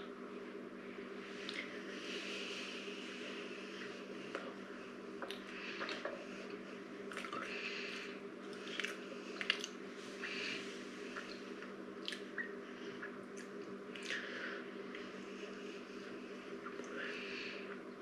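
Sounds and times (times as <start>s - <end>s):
steady low hum: 0.0s - 18.0s
wet mouth smacks: 8.6s - 9.8s, 12.0s - 12.5s.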